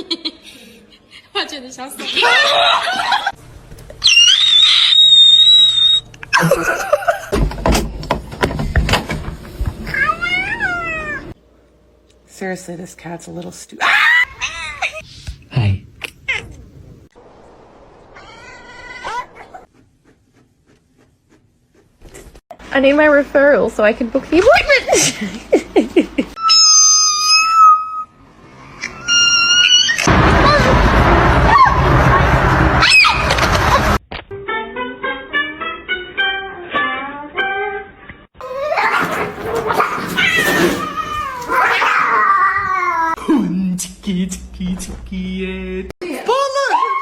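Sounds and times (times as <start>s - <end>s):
cat meowing: 9.9s - 11.3s, 38.4s - 43.2s.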